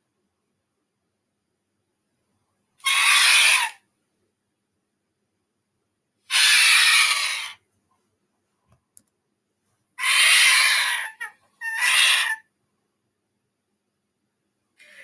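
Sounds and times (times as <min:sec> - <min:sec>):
harsh raspy bird calls: 0:02.8 - 0:03.8, 0:06.3 - 0:07.6, 0:10.0 - 0:12.5.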